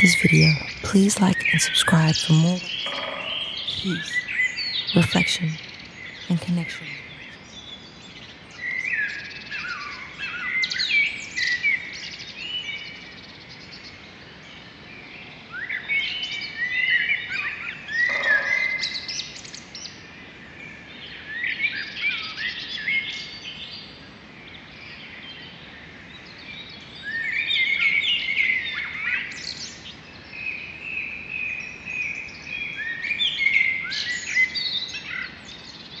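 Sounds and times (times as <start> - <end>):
faint outdoor hiss: 0.0 - 8.4.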